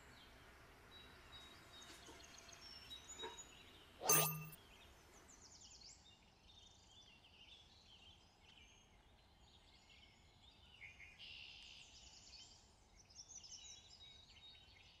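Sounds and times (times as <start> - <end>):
faint birdsong: 0.0 - 15.0.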